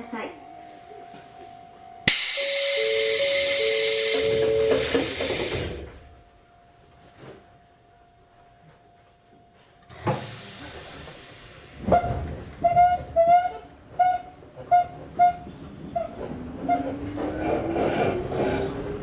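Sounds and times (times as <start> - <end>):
clanging warning bell: 0.0 - 6.2
air brake hiss: 2.1 - 6.1, 10.0 - 11.9
train motor whine: 2.1 - 6.2.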